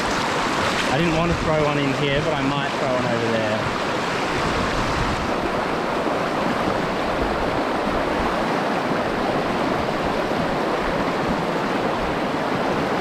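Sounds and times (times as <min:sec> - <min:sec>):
fast-flowing stream rushing: 0:00.0 - 0:13.0
wind rumble on microphone: 0:03.6 - 0:13.0.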